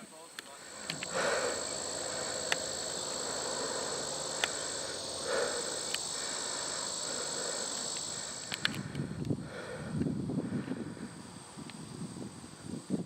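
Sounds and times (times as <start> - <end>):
insects trilling: 0.0 - 13.0
sharp clicks: 0.4 - 3.4, 4.1 - 9.4.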